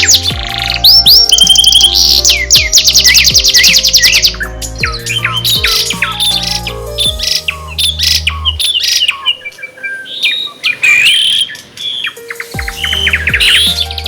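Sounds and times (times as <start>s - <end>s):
deep bass backing track: 0.0s - 9.2s, 12.6s - 14.0s
songbirds chirping and singing: 0.0s - 14.0s.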